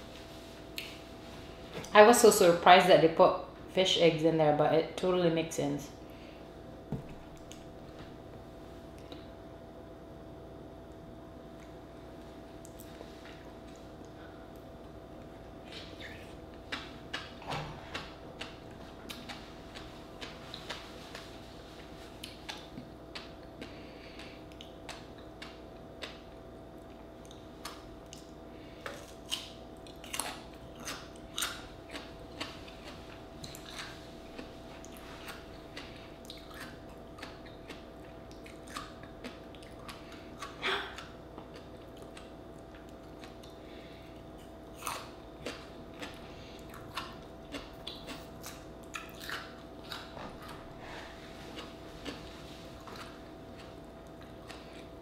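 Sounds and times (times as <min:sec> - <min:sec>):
person chewing oyster: 0:12.6 - 0:55.0.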